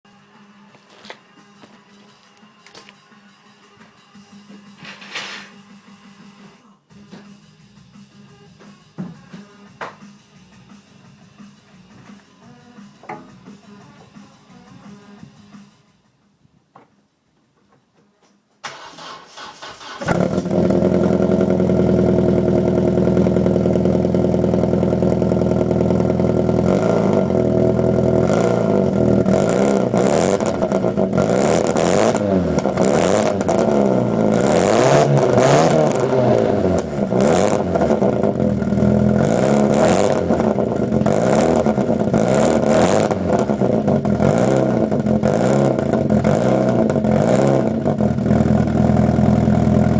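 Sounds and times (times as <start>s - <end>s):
car engine starting and revving: 18.6s - 49.9s.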